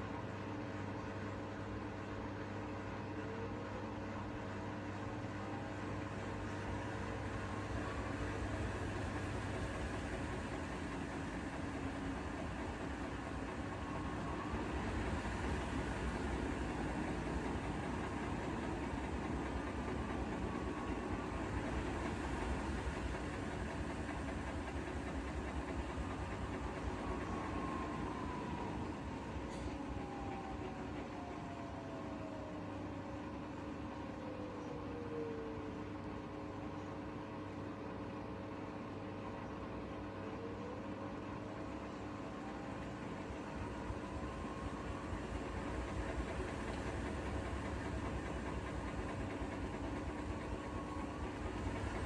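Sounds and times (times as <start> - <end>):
washing machine drum whine: 4.0 - 34.2, 41.1 - 52.0
washing machine motor hum: 5.1 - 32.2, 41.2 - 52.0.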